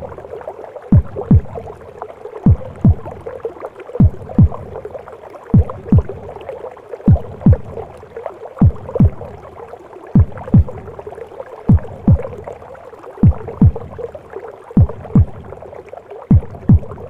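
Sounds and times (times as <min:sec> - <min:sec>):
whooshing gurgling womb sound: 0:00.0 - 0:17.0
heartbeat thumps: 0:00.9 - 0:01.8, 0:02.4 - 0:03.4, 0:04.0 - 0:04.9, 0:05.5 - 0:06.4, 0:07.1 - 0:07.9, 0:08.6 - 0:09.5, 0:10.2 - 0:11.0, 0:11.7 - 0:12.6, 0:13.2 - 0:14.1, 0:14.8 - 0:15.7, 0:16.3 - 0:17.0.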